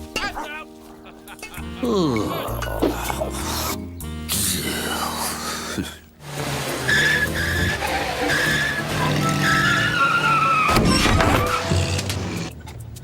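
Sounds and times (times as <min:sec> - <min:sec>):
high squealing sliding tones: 0:06.3 - 0:12.5.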